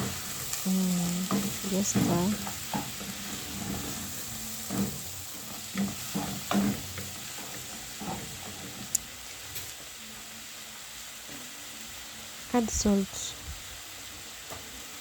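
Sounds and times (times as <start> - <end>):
meat sizzling in a frying pan: 0.0 - 15.0
scraping against a pan: 1.2 - 8.9.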